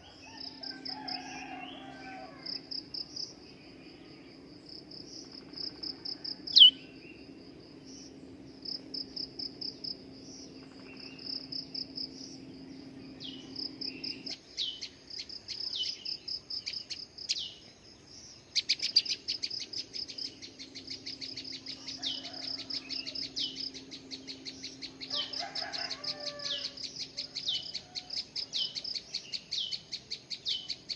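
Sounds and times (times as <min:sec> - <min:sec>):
bird chirping: 0:00.0 - 0:30.9
insect trill: 0:00.0 - 0:30.9
rapid rattling bird call: 0:18.5 - 0:30.9.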